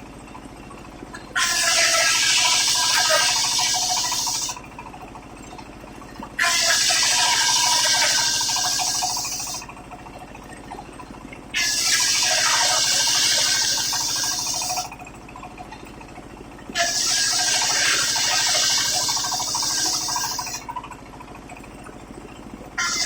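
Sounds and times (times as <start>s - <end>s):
saw blade spinning: 22.8s - 23.0s.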